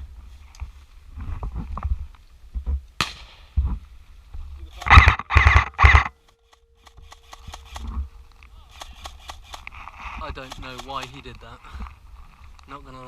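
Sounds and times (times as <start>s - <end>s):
sharp crack: 3.0s - 3.6s, 4.8s - 11.4s.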